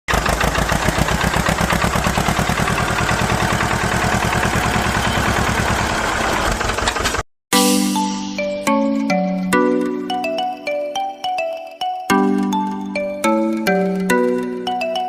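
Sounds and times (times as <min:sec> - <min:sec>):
tractor engine chugging: 0:00.1 - 0:07.2.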